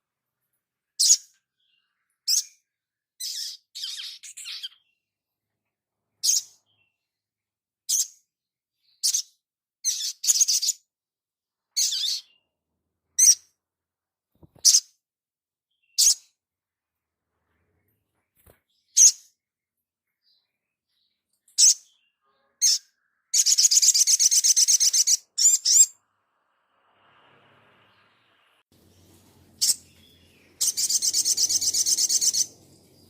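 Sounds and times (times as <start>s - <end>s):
bird calling: 29.6s - 33.0s
bird chattering: 29.6s - 33.0s.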